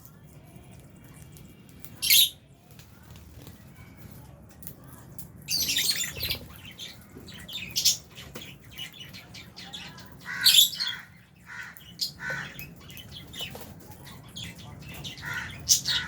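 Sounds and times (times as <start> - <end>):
lovebirds chirping and squawking: 0.0 - 16.0.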